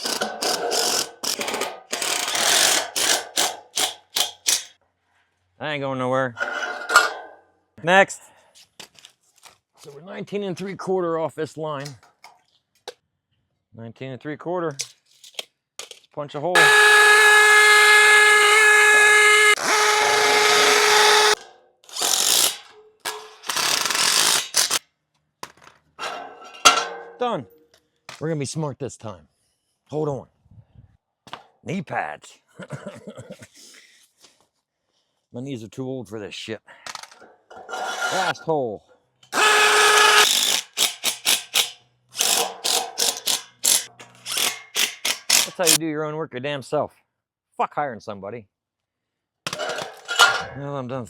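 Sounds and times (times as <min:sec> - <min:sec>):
hammer drill boring into concrete: 0:00.0 - 0:04.7, 0:16.6 - 0:24.8, 0:39.3 - 0:45.8
hammer drill whining: 0:16.6 - 0:22.5, 0:39.3 - 0:41.3.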